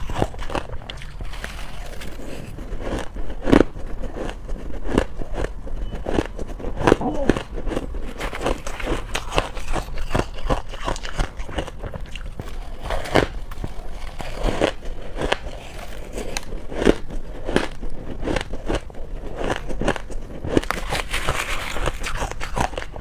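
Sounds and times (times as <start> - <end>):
crunching ice: 0.0 - 23.0.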